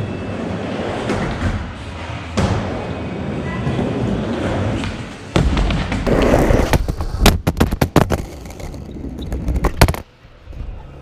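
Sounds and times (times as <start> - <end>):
skateboard rolling: 0.0 - 11.0
skateboard clacks and slaps: 4.7 - 10.1.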